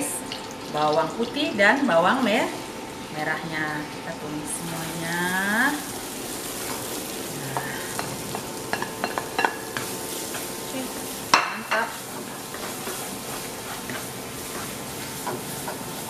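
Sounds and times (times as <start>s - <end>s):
shallots sizzling in hot oil: 0.0s - 16.0s
spatula scraping wok: 6.6s - 16.0s
spatula knocking on pan: 7.6s - 10.5s.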